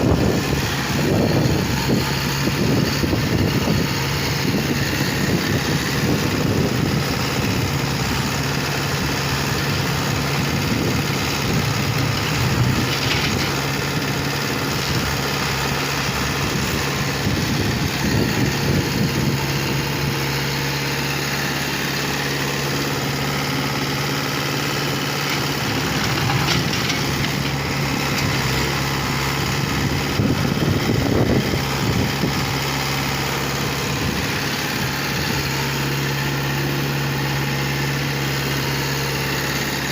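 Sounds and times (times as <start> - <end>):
construction machine diesel engine: 0.0 - 39.9.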